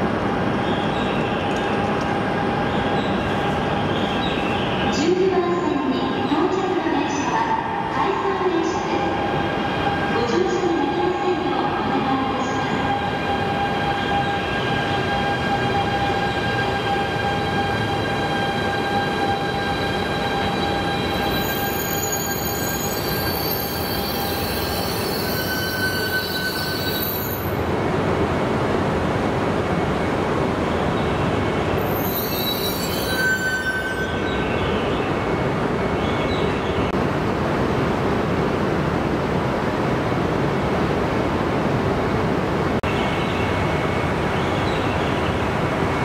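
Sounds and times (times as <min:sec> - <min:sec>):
train rumbling: 0:00.0 - 0:46.0
high wheel and brake squeals: 0:20.9 - 0:27.6, 0:31.8 - 0:34.5.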